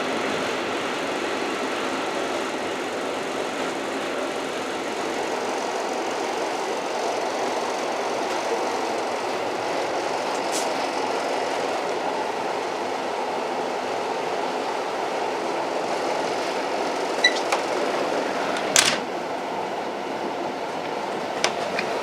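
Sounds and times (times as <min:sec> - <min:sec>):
old train running: 0:00.0 - 0:22.0
high squeak: 0:17.2 - 0:17.5.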